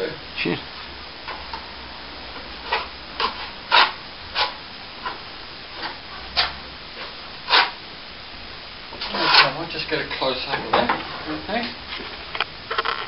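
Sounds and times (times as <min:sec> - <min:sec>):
trowel scraping wet plaster: 0:09.0 - 0:09.6.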